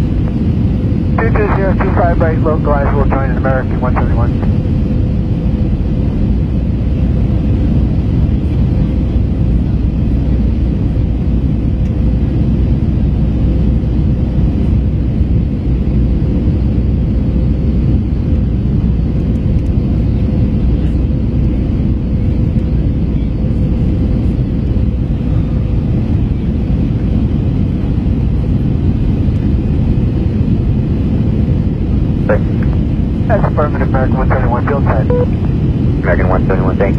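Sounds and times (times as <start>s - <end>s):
steady hum: 0.0s - 6.6s, 30.4s - 36.9s
aircraft cabin engine roar: 0.0s - 36.9s.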